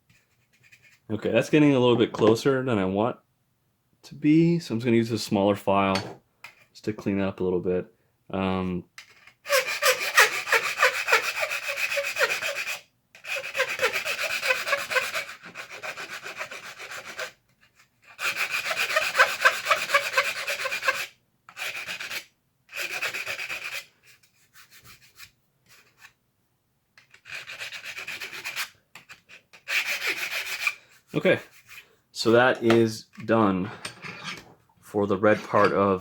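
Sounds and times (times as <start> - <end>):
hand file scraping plastic: 0.0 - 1.2, 9.0 - 26.2, 27.0 - 34.5.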